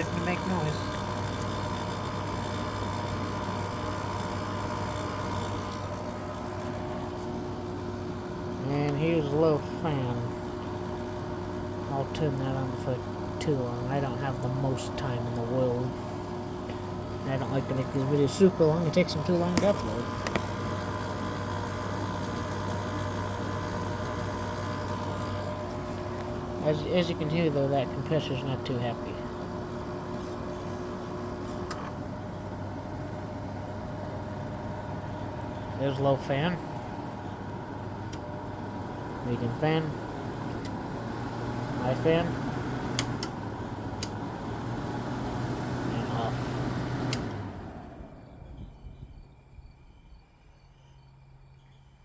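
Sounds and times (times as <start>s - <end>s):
air conditioner humming with whine: 0.0s - 52.0s
air conditioner click: 19.0s - 26.5s, 36.7s - 39.1s, 42.5s - 44.6s, 46.9s - 47.6s.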